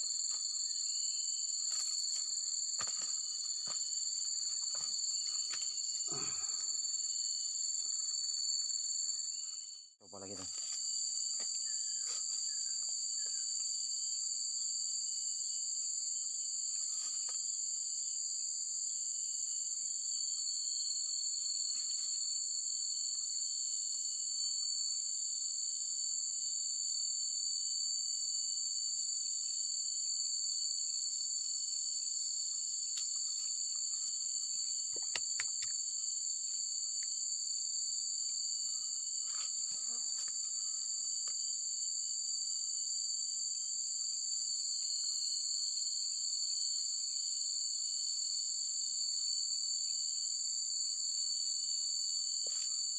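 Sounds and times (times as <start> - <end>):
insect chorus drone: 0.0 - 52.9.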